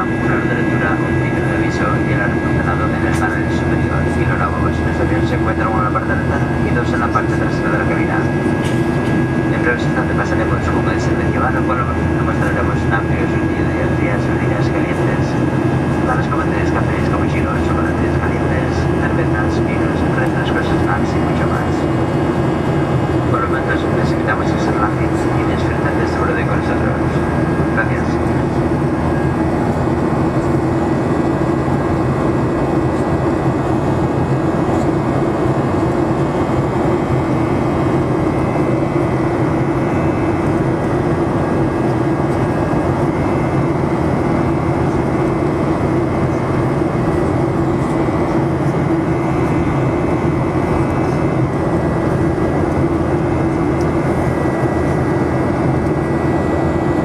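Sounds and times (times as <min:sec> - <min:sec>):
jet engines droning: 0:00.0 - 0:57.0
low hum: 0:00.0 - 0:57.0.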